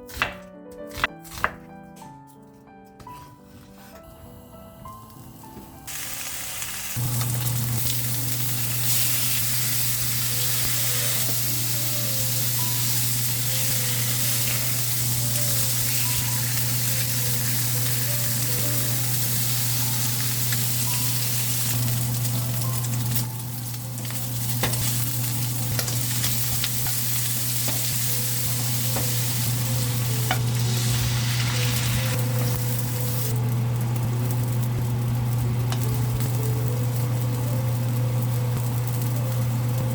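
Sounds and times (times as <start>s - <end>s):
food sizzling in a pan: 5.3s - 39.9s.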